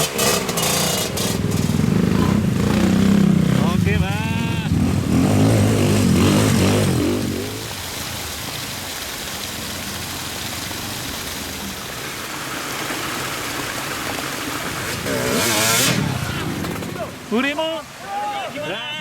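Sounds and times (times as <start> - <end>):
motorcycle engine running: 0.0 - 7.8, 14.6 - 17.1
heavy rain hissing: 0.0 - 19.0.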